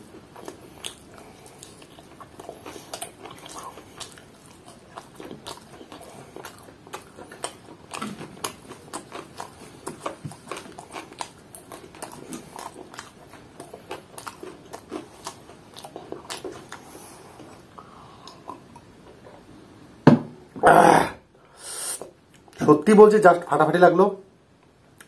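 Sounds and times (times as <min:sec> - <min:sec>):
person chewing: 0:00.0 - 0:19.3.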